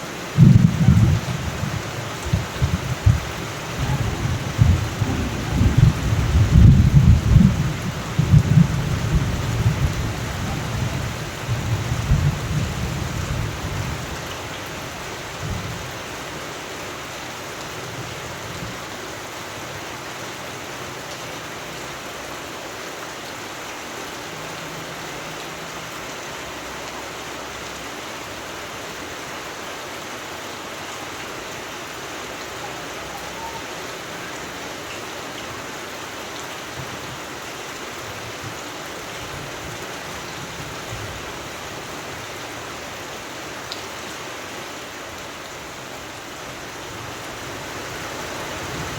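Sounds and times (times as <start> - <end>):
steady rain hiss: 0.0 - 48.9
thunder rolling: 0.4 - 13.9.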